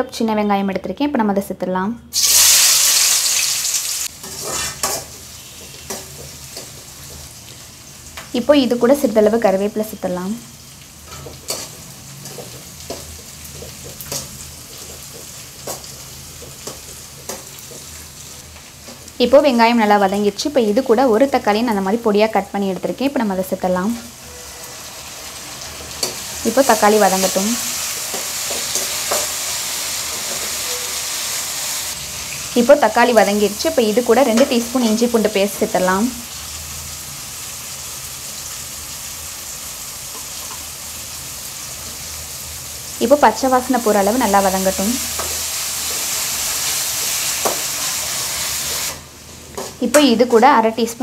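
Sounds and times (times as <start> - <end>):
shallots sizzling in hot oil: 2.1 - 51.0
metal ladle scraping a pan: 4.2 - 6.1.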